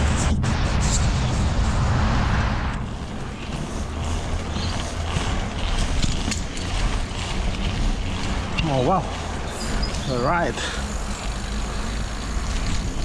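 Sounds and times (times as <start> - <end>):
wind rushing over microphone: 0.0 - 6.4.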